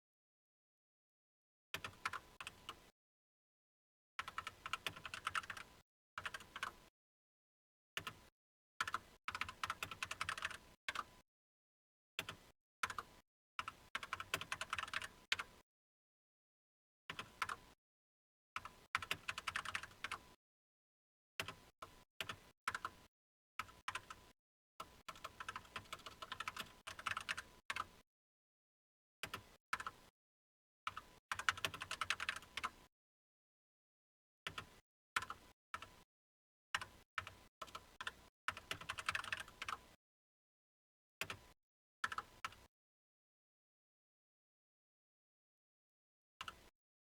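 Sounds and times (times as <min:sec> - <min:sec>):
typing on computer keyboard: 0:04.2 - 0:06.8, 0:08.8 - 0:11.1, 0:12.2 - 0:15.5, 0:17.1 - 0:17.6, 0:18.6 - 0:20.3, 0:22.2 - 0:23.0, 0:23.6 - 0:28.0, 0:29.2 - 0:30.1, 0:30.9 - 0:32.9, 0:34.5 - 0:36.0, 0:36.8 - 0:40.0, 0:41.2 - 0:42.7.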